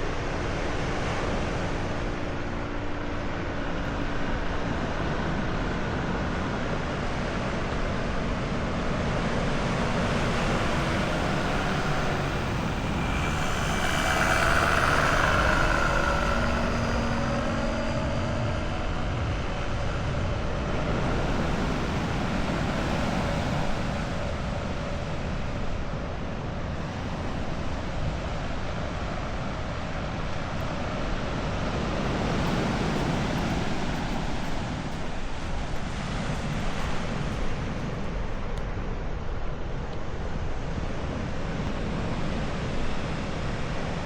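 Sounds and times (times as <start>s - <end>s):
motor vehicle passing by: 0.0s - 25.9s
steady rushing noise: 0.0s - 44.0s.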